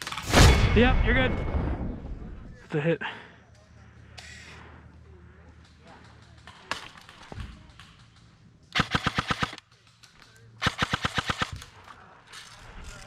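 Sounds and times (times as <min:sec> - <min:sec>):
airsoft rifle full-auto bursts: 0:08.8 - 0:09.6, 0:10.6 - 0:11.6.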